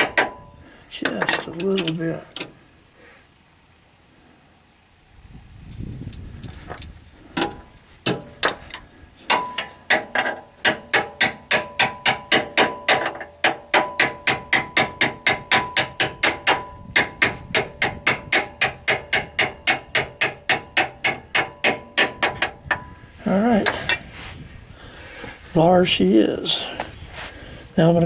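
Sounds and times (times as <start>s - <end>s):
faint metallic ringing: 0.0s - 2.6s, 9.3s - 9.9s, 23.6s - 24.4s.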